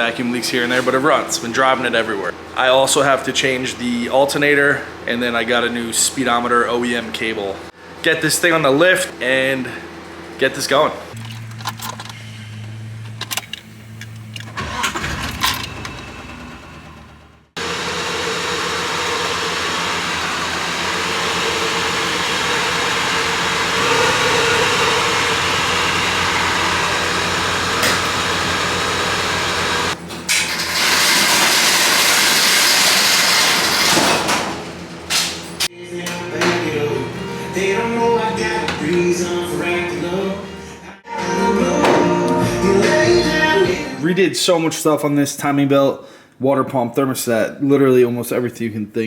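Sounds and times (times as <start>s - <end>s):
car engine starting and running: 11.1s - 35.6s.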